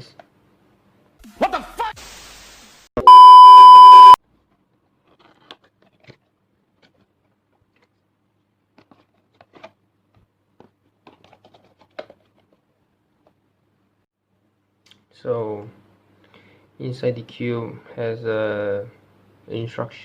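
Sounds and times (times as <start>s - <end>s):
loud beep tone: 3.0s - 4.2s
packaging clicks and rustles: 5.0s - 8.0s, 10.6s - 12.6s.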